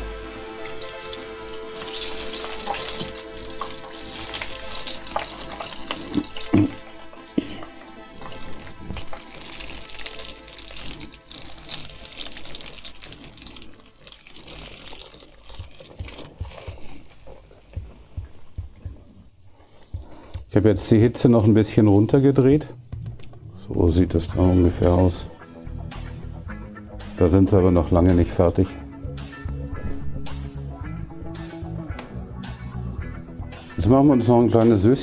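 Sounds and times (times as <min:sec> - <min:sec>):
chicken sizzling in hot oil: 0:00.0 - 0:17.7.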